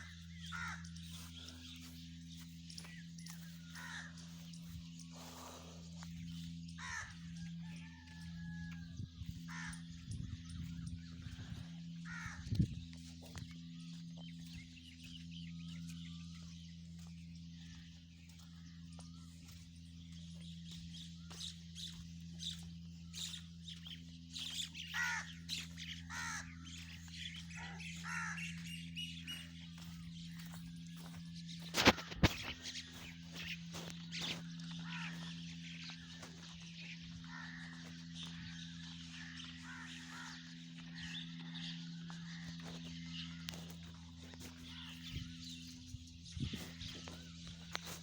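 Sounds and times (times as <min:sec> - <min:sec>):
birds calling: 0:00.0 - 0:48.0
steady low hum: 0:00.0 - 0:48.0.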